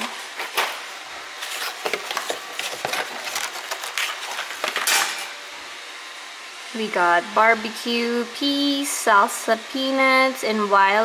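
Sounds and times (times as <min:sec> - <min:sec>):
packaging crinkling and rustling: 0:00.2 - 0:05.3.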